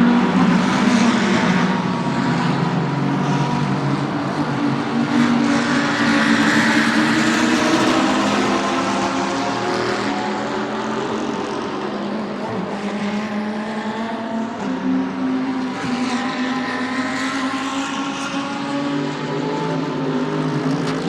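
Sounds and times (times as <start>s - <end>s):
race car engines running: 0.0s - 21.0s.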